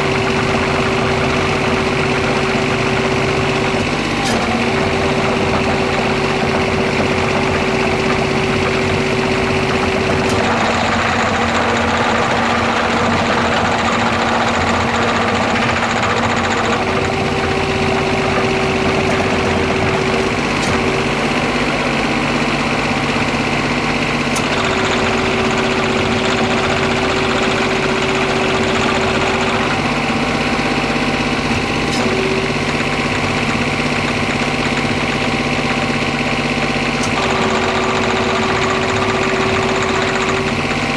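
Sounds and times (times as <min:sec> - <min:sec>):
excavator diesel engine running: 0:00.0 - 0:40.9
steady whine: 0:00.0 - 0:40.9.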